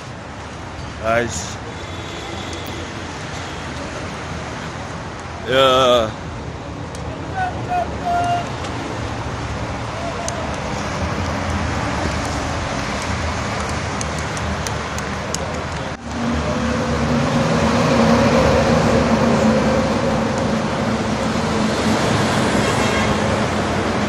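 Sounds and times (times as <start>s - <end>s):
road traffic rushing: 0.0s - 24.0s
heavy engine drone: 15.5s - 24.0s.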